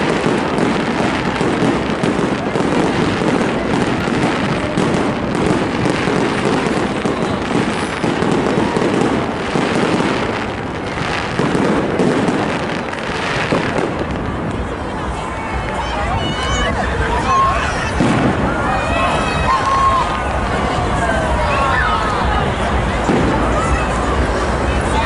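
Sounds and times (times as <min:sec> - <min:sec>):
fireworks bursting and crackling: 0:00.0 - 0:25.0.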